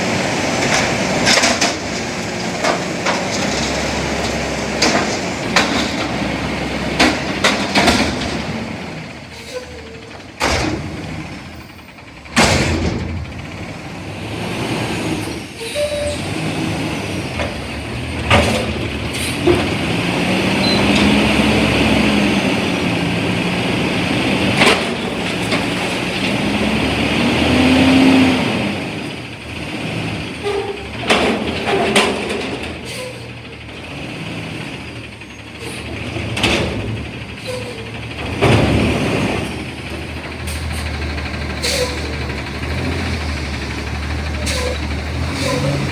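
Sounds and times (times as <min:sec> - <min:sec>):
truck engine revving: 0:00.0 - 0:45.9
metallic bangs and clunks: 0:00.5 - 0:08.7, 0:09.5 - 0:11.4, 0:12.2 - 0:13.5.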